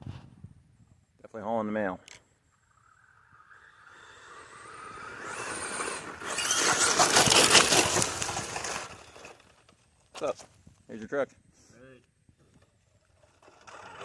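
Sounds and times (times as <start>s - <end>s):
tires churning over rough ground: 2.8s - 9.7s
electric motor whine: 3.2s - 9.0s.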